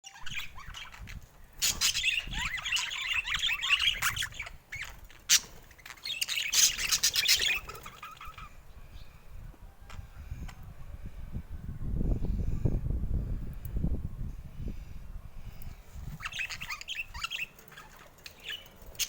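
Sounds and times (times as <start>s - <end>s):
budgerigars chattering: 0.2s - 8.5s.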